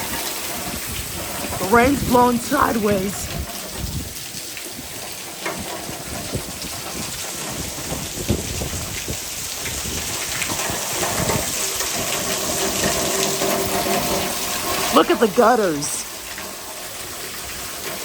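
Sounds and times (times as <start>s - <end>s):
strong wind: 0.0s - 13.0s
heavy rain: 0.0s - 18.0s
spattering raindrops: 0.0s - 18.0s.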